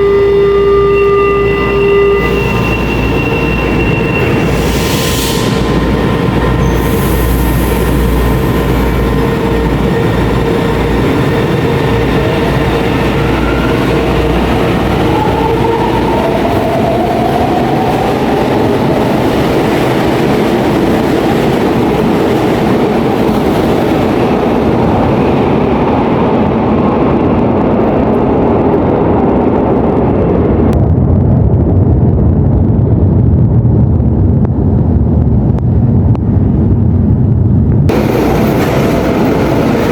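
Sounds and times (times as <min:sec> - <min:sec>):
steady electric tones: 0:00.0 - 0:19.8
metro train rumble: 0:00.0 - 0:39.9.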